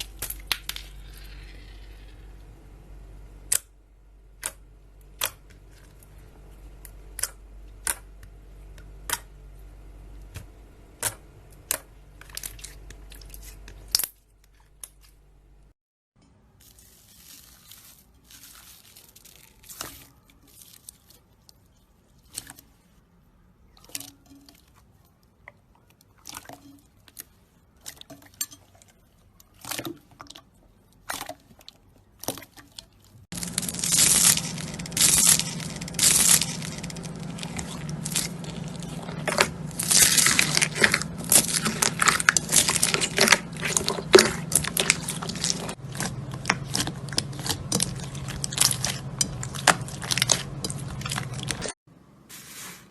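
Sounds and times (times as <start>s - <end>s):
steady low hum: 0.0s - 15.7s, 33.3s - 52.1s
slime crackling and crunching: 16.6s - 22.6s, 31.0s - 51.8s
slime squelching and popping: 29.4s - 51.7s.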